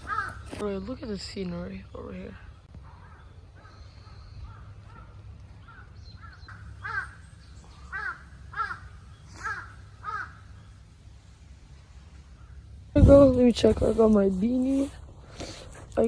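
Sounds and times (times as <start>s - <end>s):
crow cawing: 0.0s - 0.6s, 2.8s - 10.7s.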